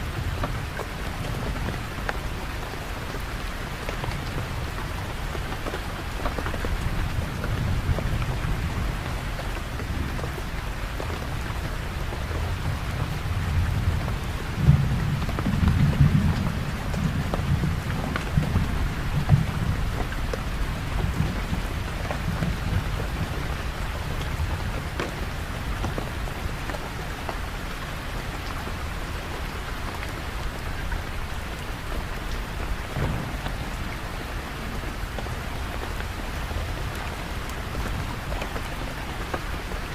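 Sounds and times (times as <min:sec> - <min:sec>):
steady rain falling: 0:00.0 - 0:39.9
thunder rumbling: 0:32.6 - 0:38.3.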